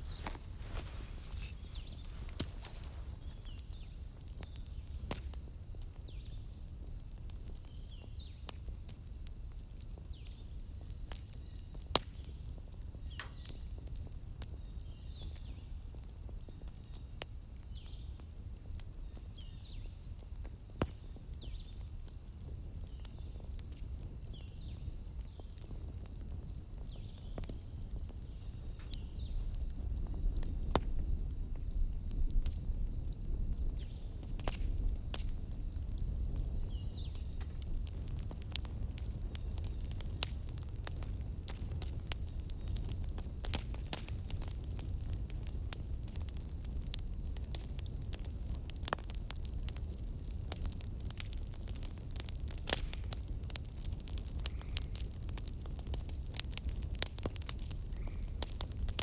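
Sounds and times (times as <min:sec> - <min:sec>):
sharp fire pops: 0:00.0 - 0:05.4, 0:28.8 - 0:59.0
wood fire crackling: 0:00.0 - 0:59.0.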